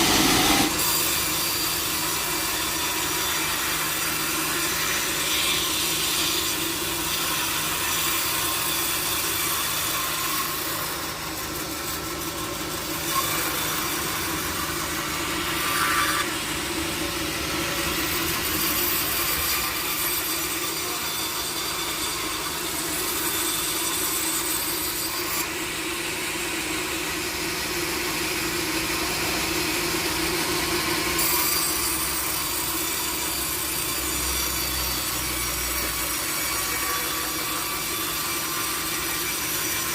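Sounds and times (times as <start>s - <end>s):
machine hum: 0.0s - 0.8s
saw rasping through wood: 0.0s - 39.9s.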